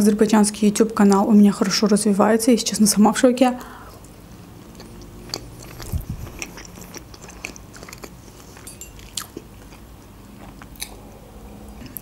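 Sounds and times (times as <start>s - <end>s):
person chewing food: 3.9s - 12.0s.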